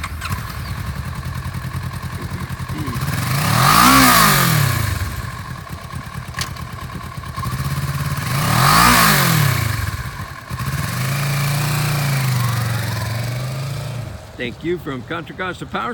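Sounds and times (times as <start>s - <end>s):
motorcycle engine idling and revving: 0.0s - 15.9s.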